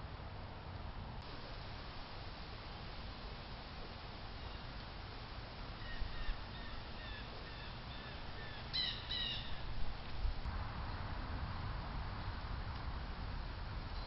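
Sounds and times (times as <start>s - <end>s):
steady hiss: 1.1s - 14.0s
bird calling: 4.3s - 4.8s, 5.7s - 9.8s.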